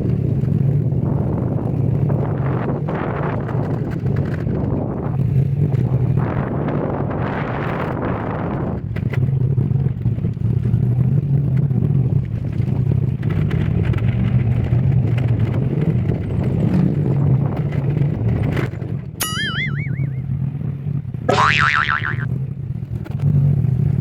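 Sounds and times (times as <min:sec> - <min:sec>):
cartoon boing sound effect: 0:19.2 - 0:20.3, 0:21.3 - 0:22.3.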